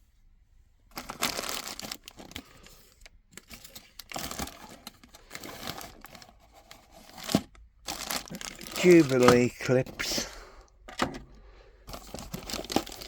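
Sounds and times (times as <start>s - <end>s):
plastic packaging crinkling: 0.9s - 10.2s, 11.9s - 13.0s.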